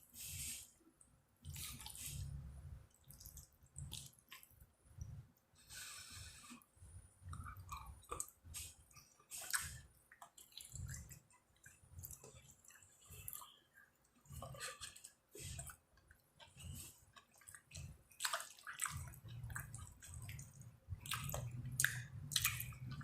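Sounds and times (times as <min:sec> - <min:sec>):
person chewing food: 0:01.4 - 0:23.0
wet mouth smacking: 0:21.1 - 0:23.0.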